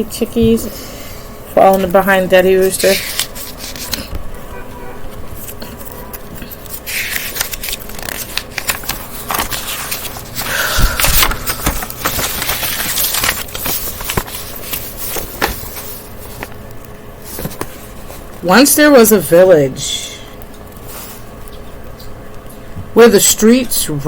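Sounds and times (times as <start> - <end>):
paper pages turning: 1.6 - 4.2, 5.1 - 18.3.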